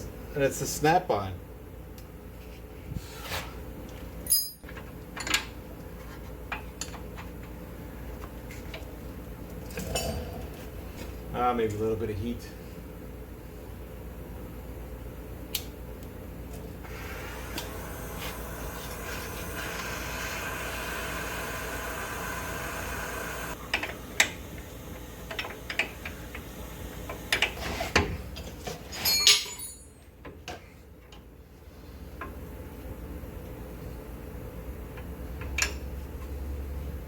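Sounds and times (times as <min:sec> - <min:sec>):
metal tools clinking on bolt: 0:04.2 - 0:05.4, 0:29.0 - 0:30.0
gas torch hissing: 0:16.8 - 0:27.8.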